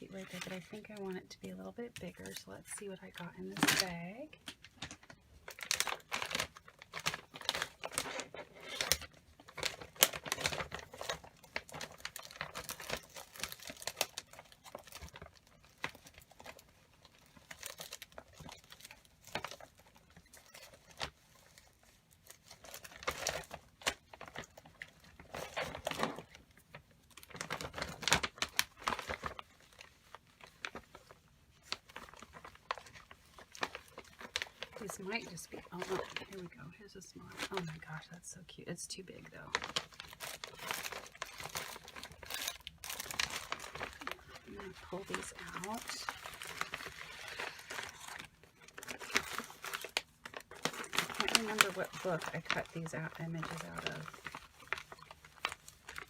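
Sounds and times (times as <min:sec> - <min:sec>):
paper and bag rustling: 0:39.5 - 0:56.0.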